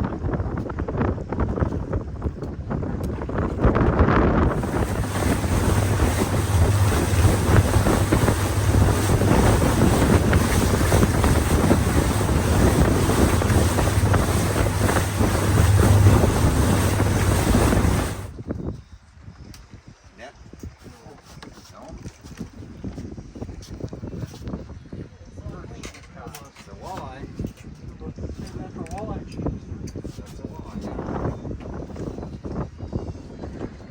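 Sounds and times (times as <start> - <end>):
wind buffeting microphone: 0.0 - 19.6
water rushing past hull: 4.4 - 18.3
motorboat engine drone: 4.5 - 18.3.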